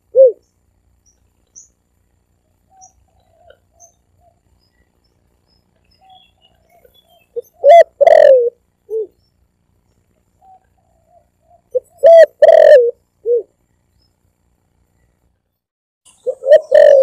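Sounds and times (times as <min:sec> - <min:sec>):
dove cooing: 0:00.0 - 0:00.4, 0:06.0 - 0:09.2, 0:10.4 - 0:13.5, 0:16.2 - 0:17.0.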